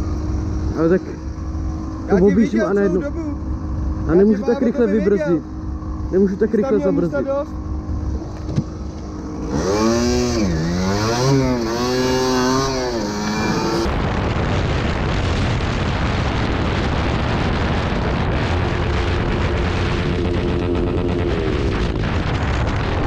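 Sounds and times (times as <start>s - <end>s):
motorcycle engine revving: 0.0s - 15.8s, 17.8s - 23.0s
wind rushing: 7.7s - 23.0s.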